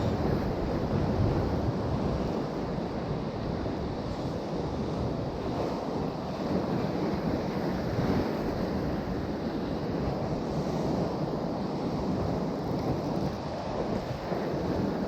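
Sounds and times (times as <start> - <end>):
sea surf washing on shore: 0.0 - 15.0.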